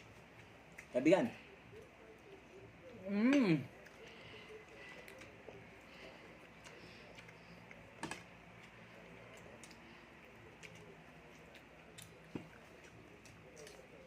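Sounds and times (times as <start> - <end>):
faint eating clicks: 1.7 - 14.0.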